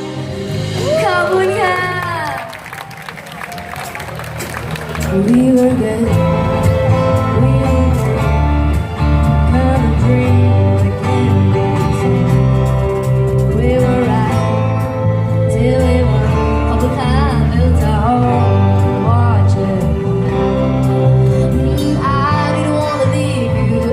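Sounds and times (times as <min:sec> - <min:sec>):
live band music: 0:00.0 - 0:23.9
heavy bass line: 0:04.2 - 0:23.9
person singing: 0:05.0 - 0:11.7, 0:13.5 - 0:23.9.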